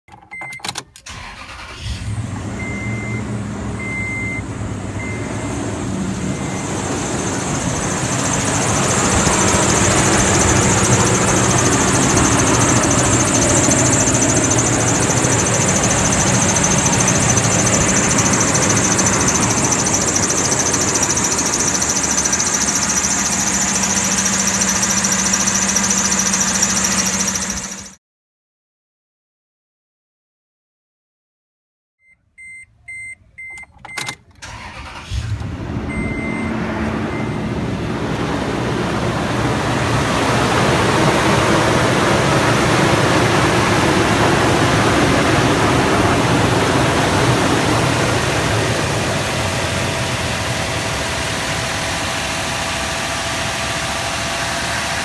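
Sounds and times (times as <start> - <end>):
truck engine starting and running: 0.1 - 28.0, 32.4 - 55.0
short beeps: 2.6 - 5.5, 32.0 - 34.2, 35.9 - 37.6
high-pitched belt squeal: 6.1 - 28.0.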